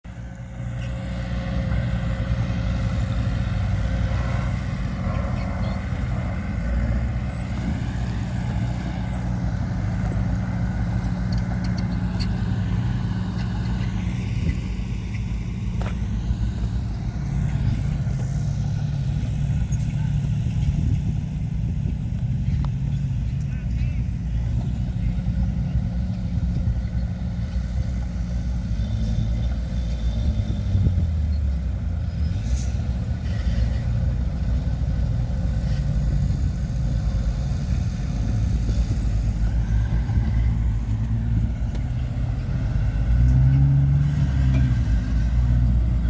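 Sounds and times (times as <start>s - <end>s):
diesel engine under load: 0.0s - 46.0s.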